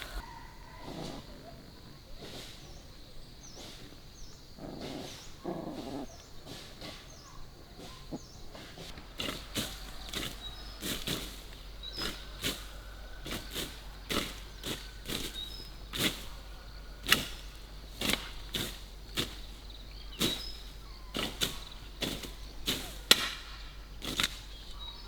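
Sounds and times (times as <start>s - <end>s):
hand tools chopping brush and soil: 0.0s - 1.2s, 2.2s - 25.0s
animal call: 0.0s - 2.8s.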